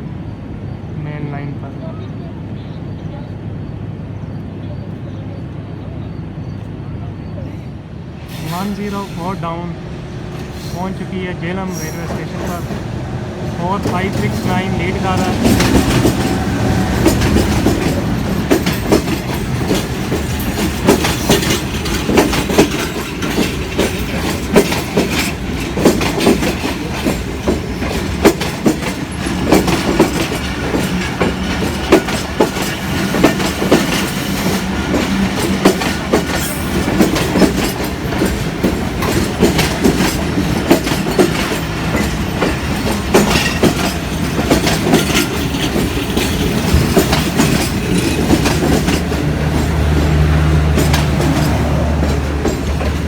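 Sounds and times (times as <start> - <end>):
train rumbling on track: 0.0 - 53.0
wheels clacking over rail joints: 11.7 - 53.0.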